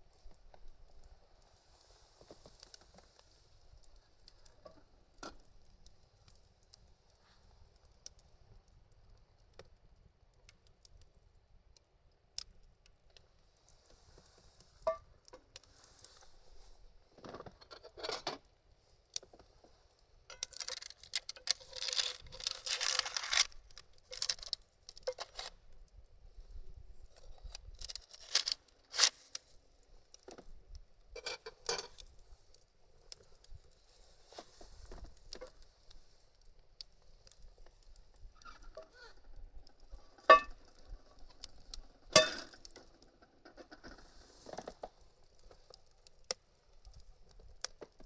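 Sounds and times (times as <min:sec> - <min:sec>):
scraping and rustling: 0:19.2 - 0:25.5, 0:27.2 - 0:29.5.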